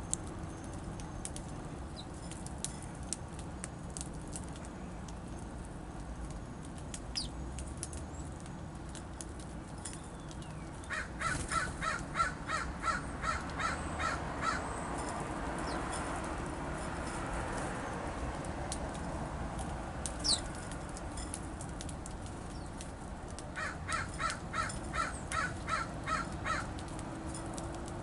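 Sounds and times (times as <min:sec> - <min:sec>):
small birds chirping: 0:00.0 - 0:16.4, 0:19.6 - 0:27.0
bird harsh call: 0:10.8 - 0:14.8.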